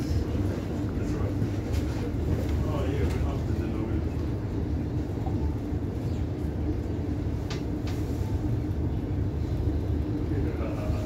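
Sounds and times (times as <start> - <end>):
train equipment humming: 0.0 - 11.0.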